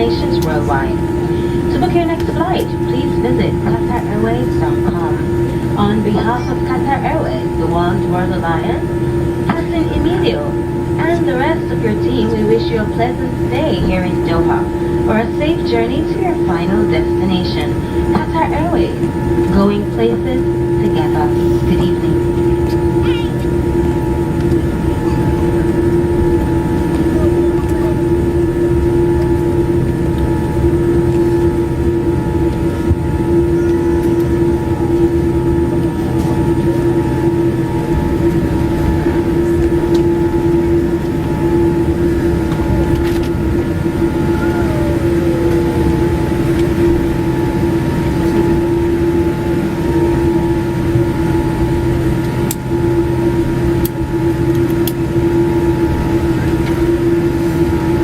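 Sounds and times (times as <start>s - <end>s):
air-conditioning hum: 0.0s - 58.0s
aircraft engines idling: 0.0s - 58.0s
low drone tone: 0.0s - 58.0s.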